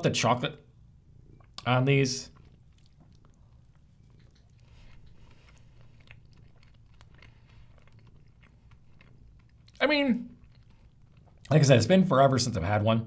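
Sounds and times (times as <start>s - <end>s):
faint chewing: 1.3s - 11.6s.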